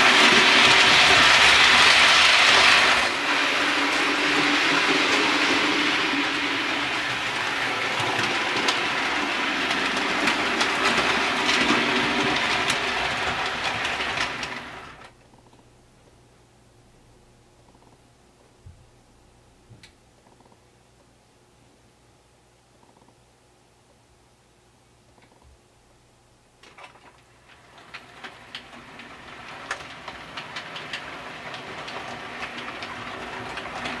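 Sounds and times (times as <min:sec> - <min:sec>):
model locomotive motor hum: 0:00.0 - 0:15.1, 0:27.5 - 0:34.0
wheels clicking over rail joints: 0:00.0 - 0:15.1, 0:26.6 - 0:34.0.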